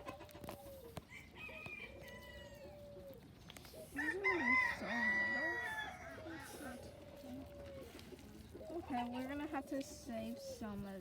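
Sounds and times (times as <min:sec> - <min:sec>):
rooster crowing: 0:01.1 - 0:02.9, 0:04.0 - 0:06.8.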